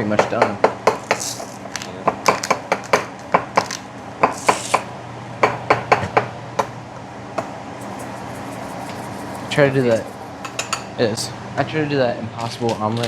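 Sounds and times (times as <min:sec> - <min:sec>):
fork tapping in a bowl: 0:07.8 - 0:10.9.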